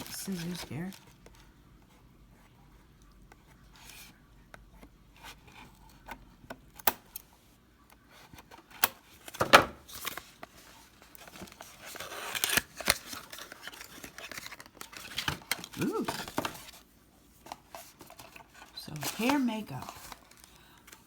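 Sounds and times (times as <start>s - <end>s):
packaging tearing and crinkling: 11.0s - 16.8s, 17.7s - 21.0s.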